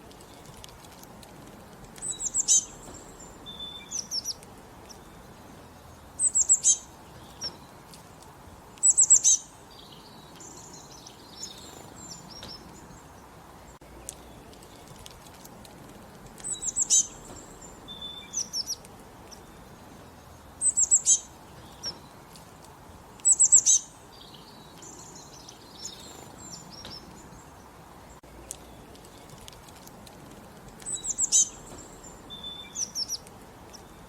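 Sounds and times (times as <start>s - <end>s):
birds chirping faintly: 0.0s - 34.0s
soft background hiss: 0.0s - 34.0s
bird singing high falling notes: 16.4s - 18.8s.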